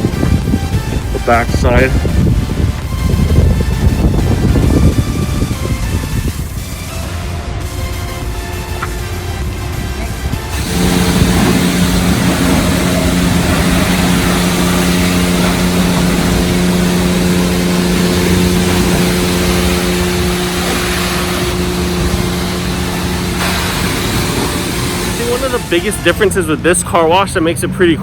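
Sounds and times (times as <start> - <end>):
pump hum: 8.4 - 26.3
spraying water hiss: 10.5 - 26.2.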